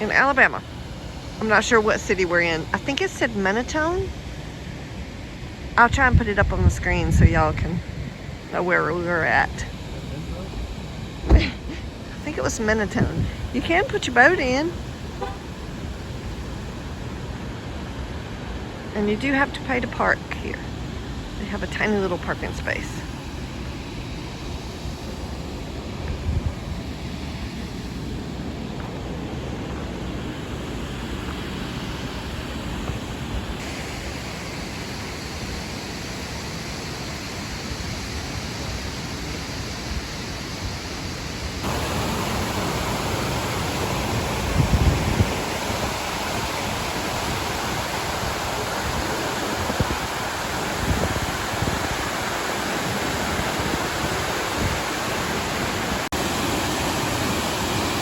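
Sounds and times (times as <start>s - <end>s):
waterfall rushing: 0.0s - 58.0s
wind gusts on microphone: 0.0s - 58.0s.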